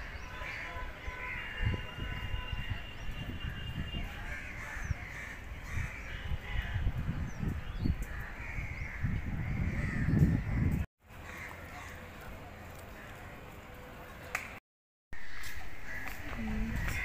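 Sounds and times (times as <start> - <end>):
wind buffeting microphone: 0.0 - 10.9, 15.5 - 17.0.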